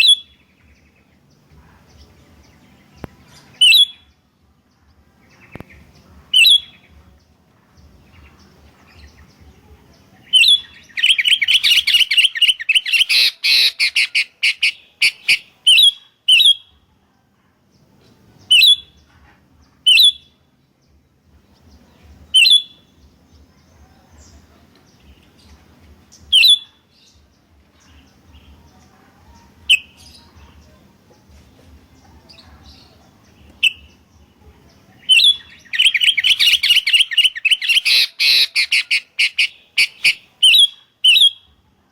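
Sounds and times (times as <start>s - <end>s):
bulbuls calling: 10.0s - 16.6s, 29.4s - 41.4s
rapid bird chattering: 10.2s - 16.6s, 32.3s - 34.1s, 34.8s - 41.4s.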